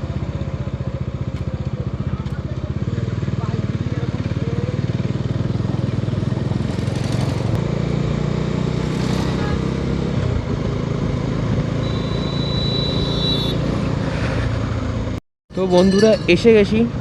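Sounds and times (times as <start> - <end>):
motorcycle engine running: 0.0 - 13.7
high-pitched tone: 15.5 - 16.9.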